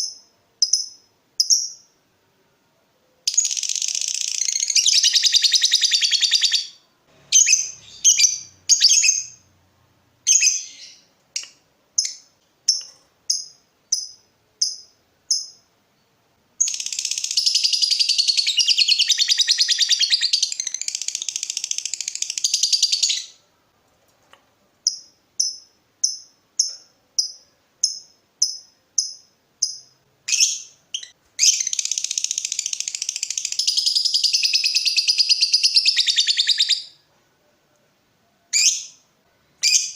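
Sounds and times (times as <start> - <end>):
bird ticking chirps: 0.0 - 1.9, 10.3 - 15.6, 24.8 - 36.8.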